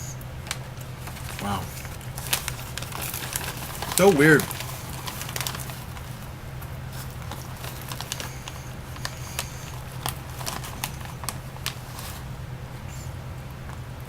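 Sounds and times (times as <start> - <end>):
steady low hum: 0.0 - 14.0
chips being chewed crunchily: 1.0 - 12.3.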